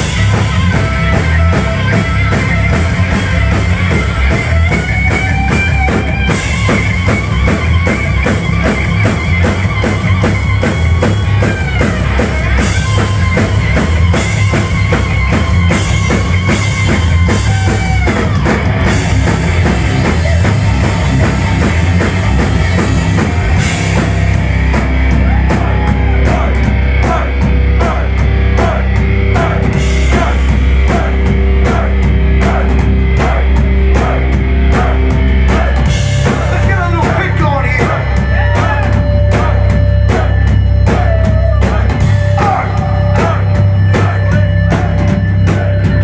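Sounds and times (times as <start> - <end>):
heavy metal band playing live: 0.0 - 46.0.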